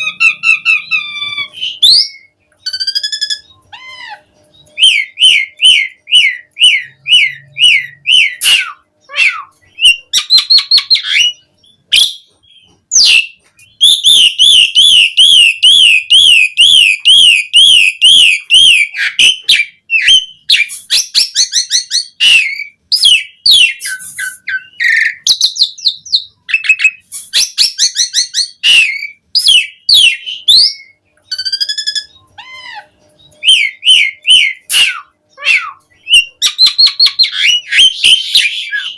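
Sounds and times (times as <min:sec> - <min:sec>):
starling singing varied song: 0:00.0 - 0:38.9.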